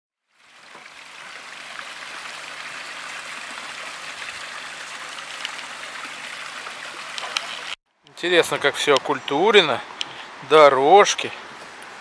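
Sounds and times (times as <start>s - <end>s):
waterfall rushing water: 0.4s - 7.8s.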